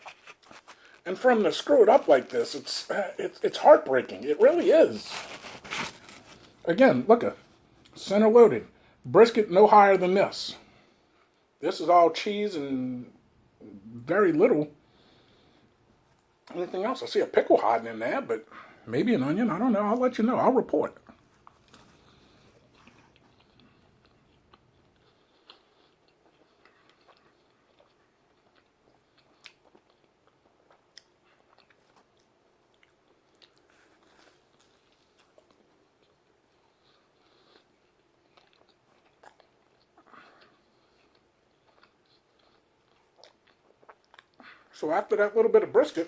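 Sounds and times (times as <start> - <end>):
faint chewing: 0.0 - 6.6, 21.0 - 44.8.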